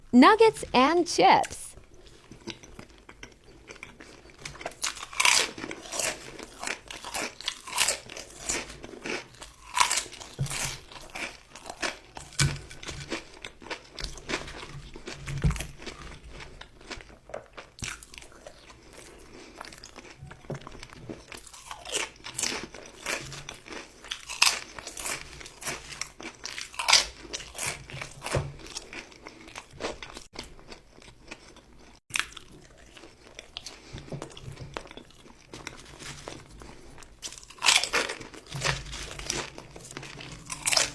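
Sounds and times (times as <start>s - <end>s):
chewing: 1.8s - 40.9s
crunching bites: 4.5s - 13.8s, 37.2s - 40.9s.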